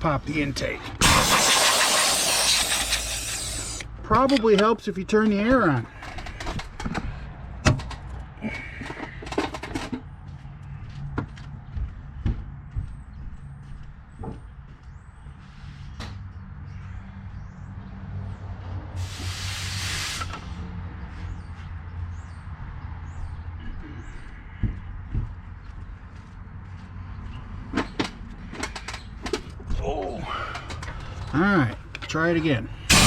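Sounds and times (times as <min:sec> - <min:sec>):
compressed air blast: 0:01.0 - 0:03.9, 0:19.0 - 0:20.5
tools clicking and knocking: 0:27.7 - 0:29.6.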